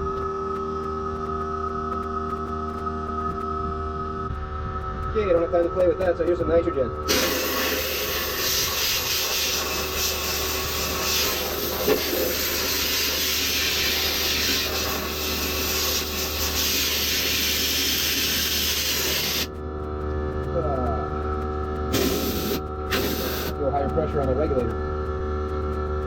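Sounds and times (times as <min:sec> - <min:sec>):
gas hissing from hose: 0:07.1 - 0:19.5, 0:21.9 - 0:23.6.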